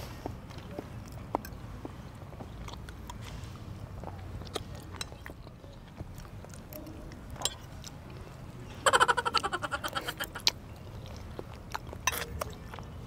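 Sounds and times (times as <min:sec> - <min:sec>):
chewing: 0:00.5 - 0:08.4, 0:09.8 - 0:13.0.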